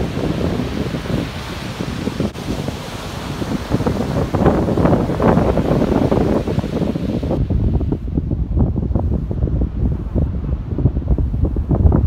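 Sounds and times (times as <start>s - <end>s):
ocean surf breaking: 0.0s - 8.0s
wind buffeting microphone: 0.0s - 12.0s.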